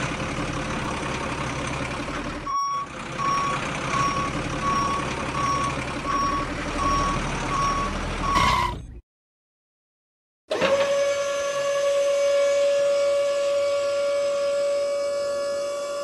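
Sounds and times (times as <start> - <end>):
truck engine running: 0.0 - 9.0
truck reversing alarm beeping: 2.4 - 8.9.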